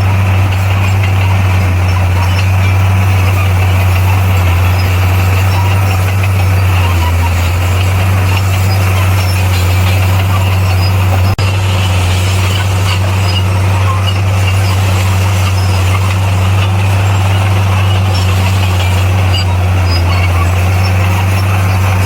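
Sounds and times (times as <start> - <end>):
bulldozer diesel engine running: 0.0 - 22.0.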